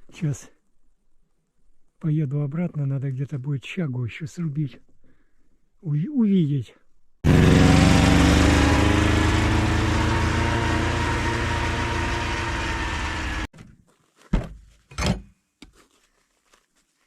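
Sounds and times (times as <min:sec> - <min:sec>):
vehicle engine running: 0:07.3 - 0:13.5.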